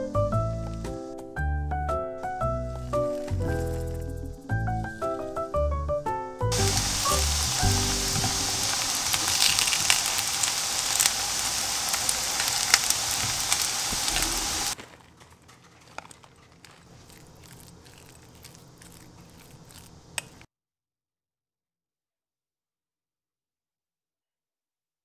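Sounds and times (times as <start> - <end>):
zucchini sizzling in hot oil: 6.5 - 14.8.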